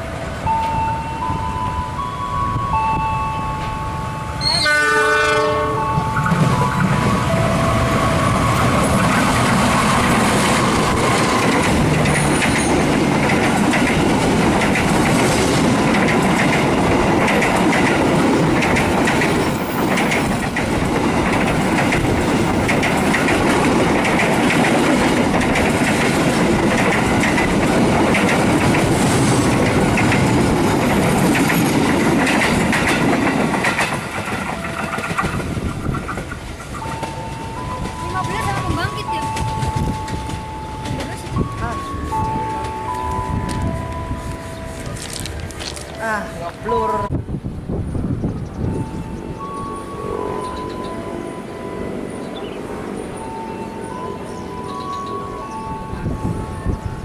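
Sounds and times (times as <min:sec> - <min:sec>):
train rumbling past: 0:00.0 - 0:57.0
train horn blast: 0:04.4 - 0:06.4
wheels clattering over rail joints: 0:05.8 - 0:44.0.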